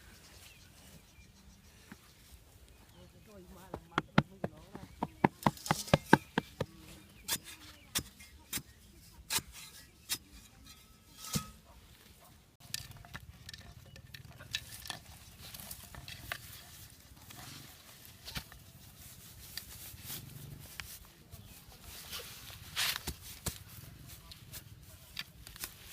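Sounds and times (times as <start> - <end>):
scraping and rustling: 9.4 - 25.9.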